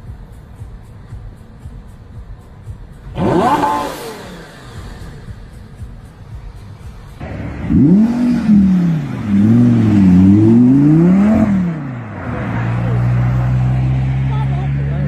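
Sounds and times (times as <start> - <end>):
sports car engine revving: 3.0 - 15.0.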